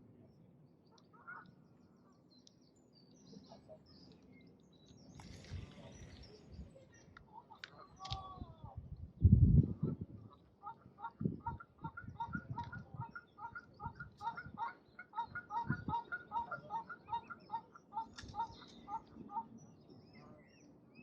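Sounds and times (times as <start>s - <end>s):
small birds chirping: 0.2s - 21.0s
ducks calling: 10.3s - 19.5s.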